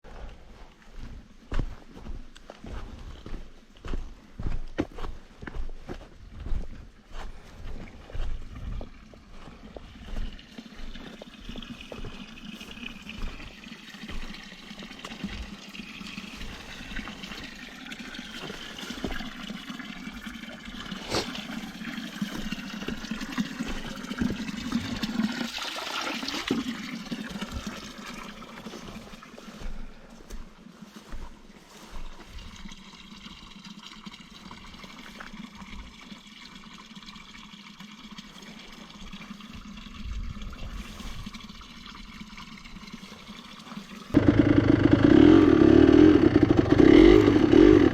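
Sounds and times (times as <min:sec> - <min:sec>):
fountain water splashing into trough: 0:10.1 - 0:29.4.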